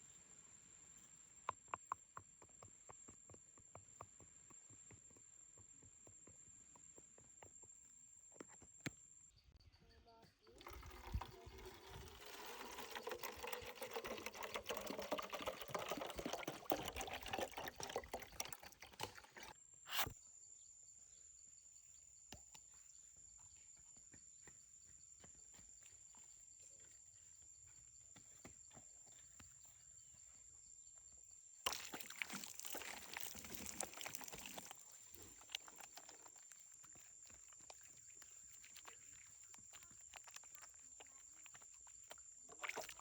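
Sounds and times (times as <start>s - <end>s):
water pouring and splashing: 10.6s - 19.6s, 31.6s - 43.0s.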